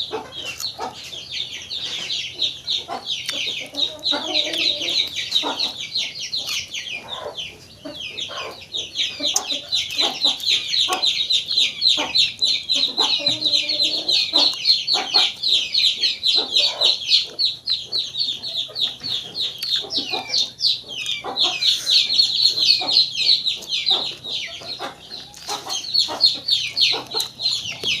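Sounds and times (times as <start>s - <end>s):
chickens clucking: 0.0s - 28.0s
chicks peeping: 0.0s - 28.0s.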